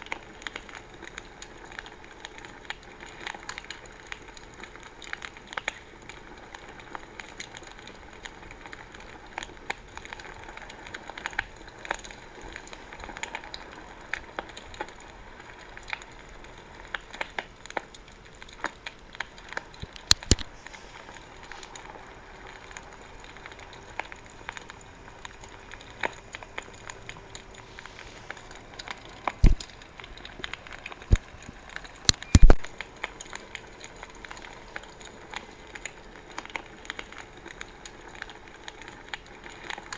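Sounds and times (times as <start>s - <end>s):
faint steady hiss: 0.0s - 39.9s
wood fire crackling and popping: 0.0s - 39.9s.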